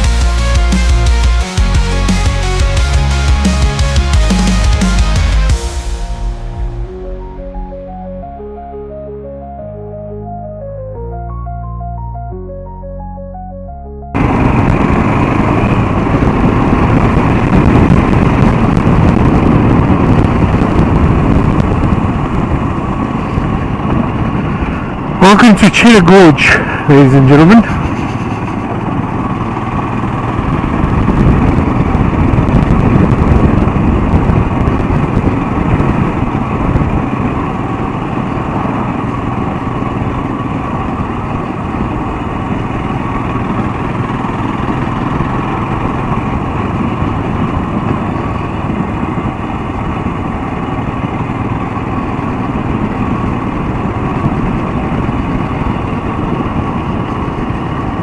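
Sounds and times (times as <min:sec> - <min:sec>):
motorcycle engine running: 0:14.1 - 0:25.2, 0:27.8 - 0:58.0.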